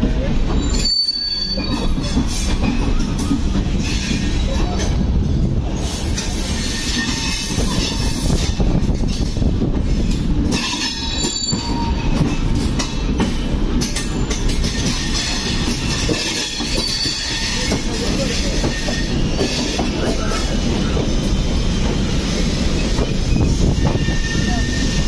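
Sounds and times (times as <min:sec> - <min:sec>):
steel wheels rumbling on rail: 0:00.0 - 0:25.0
wheel squeals: 0:00.6 - 0:04.3, 0:05.7 - 0:08.4, 0:10.6 - 0:12.2, 0:14.1 - 0:20.6, 0:22.7 - 0:25.0.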